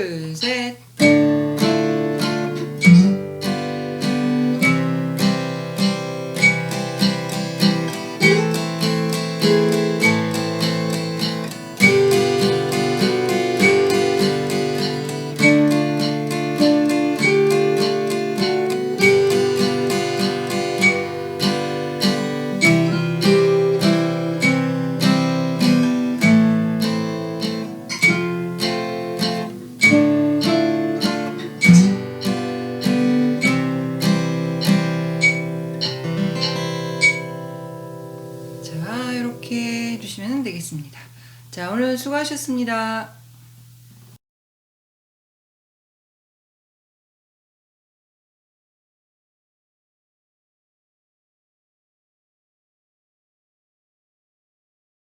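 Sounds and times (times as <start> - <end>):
acoustic guitar strumming: 0.0 - 43.3.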